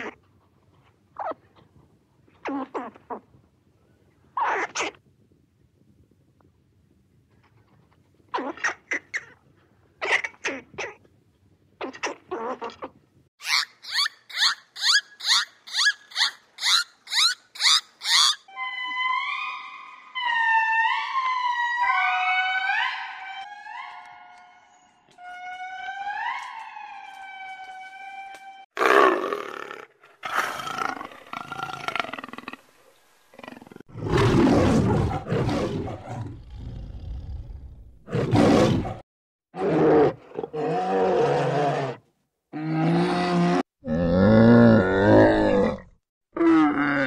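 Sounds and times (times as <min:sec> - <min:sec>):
lion roaring: 0:33.4 - 0:39.0, 0:42.6 - 0:47.0.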